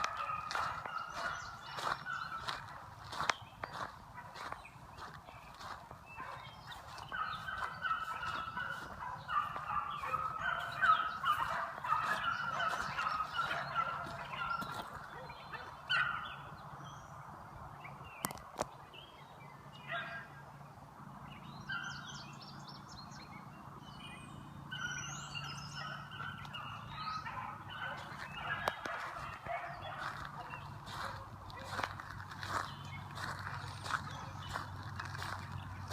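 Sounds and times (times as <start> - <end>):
hounds baying: 0.0 - 16.5, 24.7 - 35.9.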